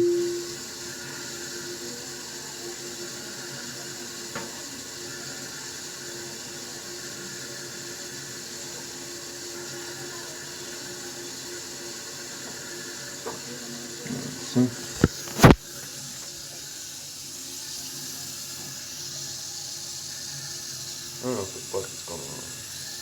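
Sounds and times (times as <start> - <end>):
steady tone: 0.0 - 0.6
toilet tank refilling: 0.0 - 23.0
small click: 15.0 - 15.6.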